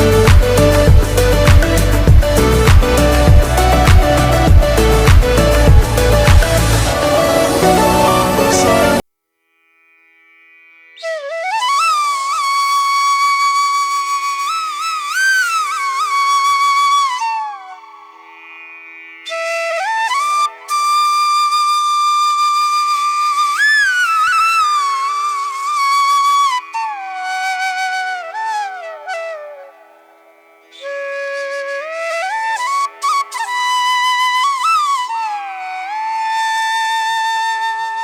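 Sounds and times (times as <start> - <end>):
flute melody with sliding notes: 0.0 - 9.0, 11.0 - 18.4, 19.2 - 38.0
held drone: 0.0 - 9.0.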